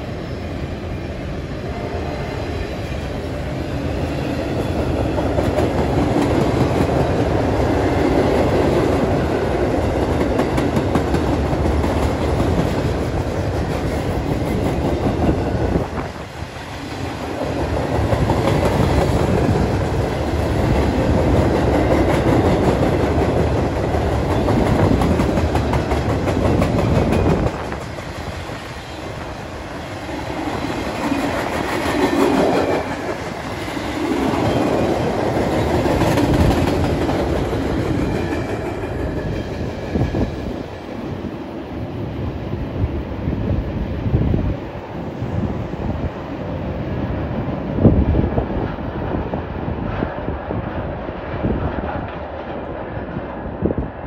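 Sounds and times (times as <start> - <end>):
train cars rumbling on rails: 0.0 - 54.0.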